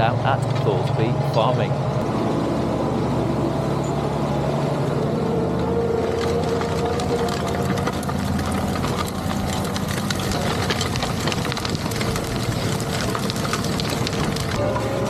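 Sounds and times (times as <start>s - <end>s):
tractor diesel engine running: 0.0s - 15.0s
small clicks and rattles: 6.2s - 15.0s.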